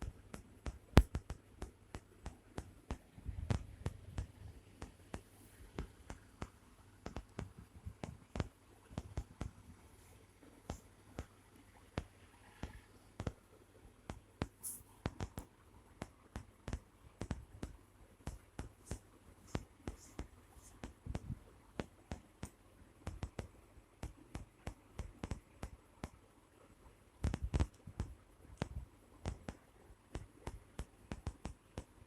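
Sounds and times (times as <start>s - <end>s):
cat paws tapping and scuffing: 14.1s - 26.2s.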